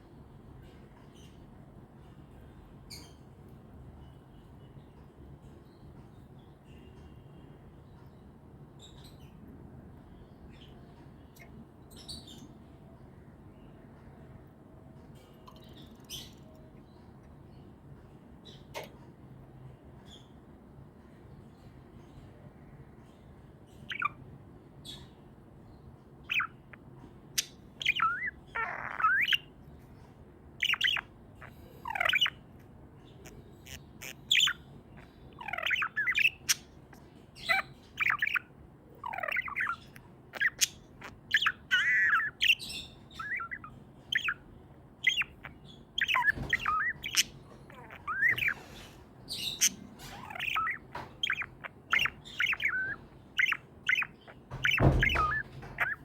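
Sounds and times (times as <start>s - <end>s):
budgerigars chirping and warbling: 2.8s - 3.3s, 10.0s - 12.6s, 15.2s - 17.7s, 23.0s - 24.2s, 26.2s - 30.0s, 30.6s - 56.0s.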